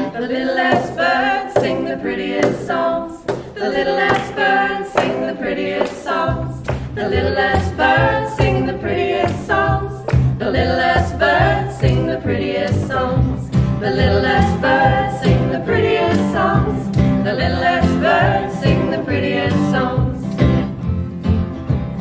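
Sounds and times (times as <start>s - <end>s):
women's choir singing: 0.0s - 20.7s
acoustic guitar: 0.0s - 22.0s
percussion beat: 0.6s - 20.6s
bass: 6.2s - 22.0s.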